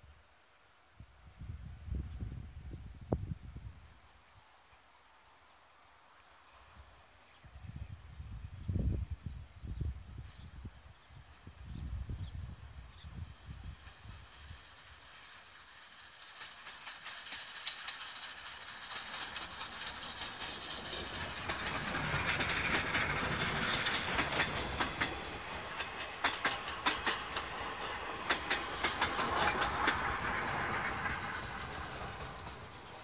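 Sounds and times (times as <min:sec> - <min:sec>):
steam train passing: 0:10.1 - 0:33.0
wheels clacking over rail joints: 0:14.7 - 0:33.0.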